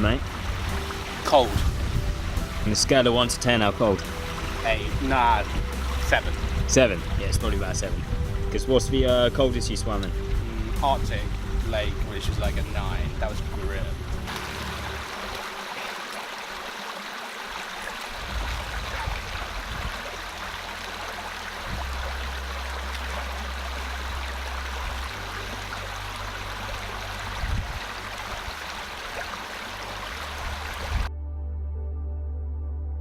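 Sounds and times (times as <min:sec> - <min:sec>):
low rumble: 0:00.0 - 0:15.2, 0:18.2 - 0:28.7
stream rushing: 0:00.0 - 0:31.1.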